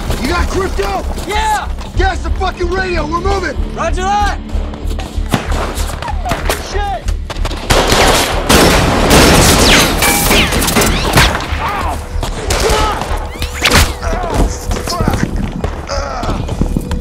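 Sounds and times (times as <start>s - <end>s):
rapid gunfire volley: 7.4s - 11.5s.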